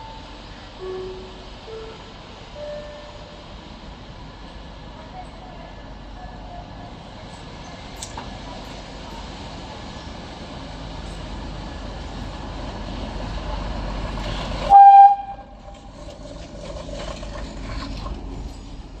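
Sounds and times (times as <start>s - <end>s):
diesel locomotive engine rumble: 0.0s - 19.0s
train clatter: 0.0s - 19.0s
locomotive horn blast: 14.7s - 15.8s.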